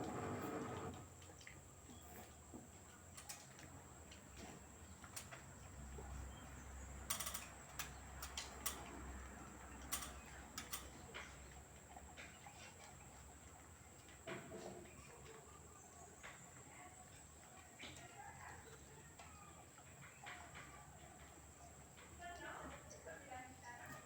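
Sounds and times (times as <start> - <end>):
washing machine hum: 0.0 - 3.1
light clicks and ticks: 7.0 - 12.4.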